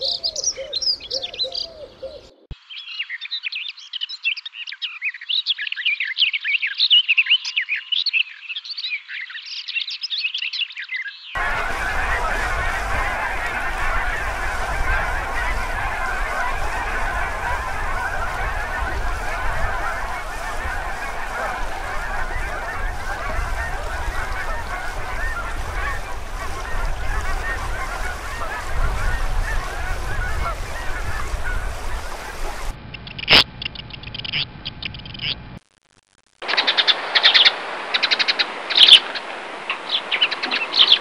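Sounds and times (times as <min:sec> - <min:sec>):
geese honking: 0:11.4 - 0:32.8.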